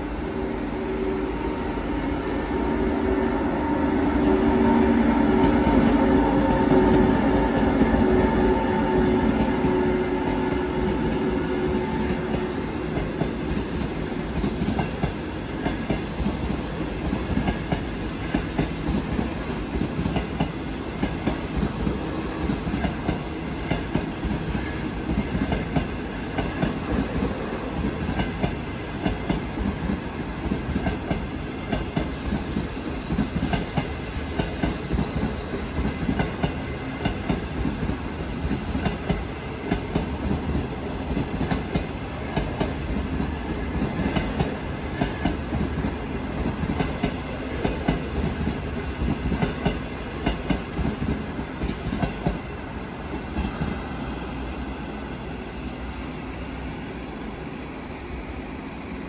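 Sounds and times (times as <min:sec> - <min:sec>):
train wheels clacking over rails: 0:04.5 - 0:52.5.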